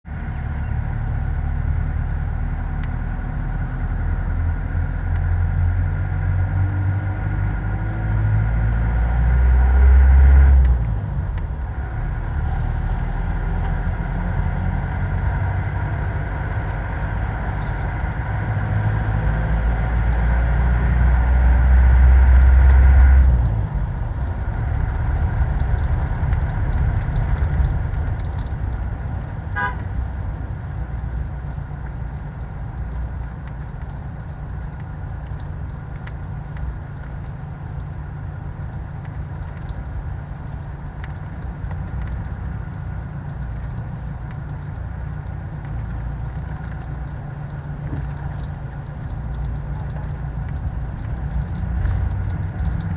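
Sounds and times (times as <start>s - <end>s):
vehicle low rumble: 0.0s - 52.9s
horn tooting: 29.5s - 30.0s.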